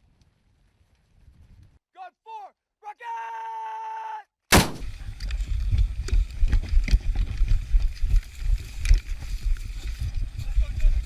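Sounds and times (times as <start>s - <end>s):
wind rumble on microphone: 0.0s - 1.8s, 4.8s - 11.0s
gunfire: 4.5s - 5.0s.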